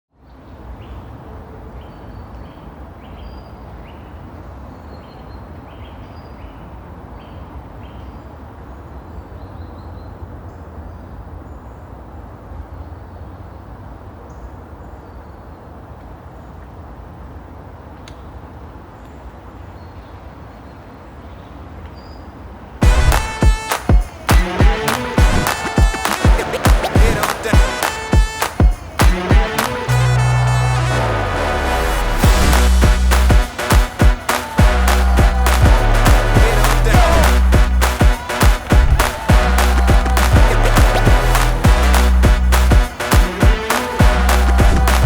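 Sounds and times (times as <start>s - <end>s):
steady low rumble: 31.2s - 42.9s, 44.0s - 45.0s.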